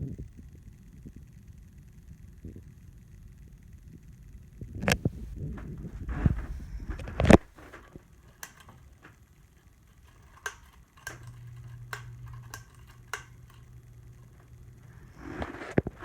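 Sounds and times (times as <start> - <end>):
fan motor hum: 2.0 - 16.0
ceiling fan clicks: 4.7 - 16.0.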